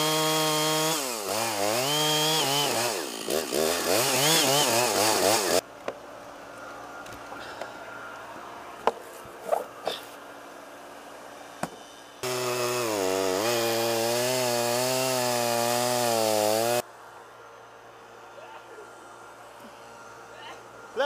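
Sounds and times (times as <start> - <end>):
chainsaw cutting wood: 0.0 - 5.6, 12.2 - 16.8.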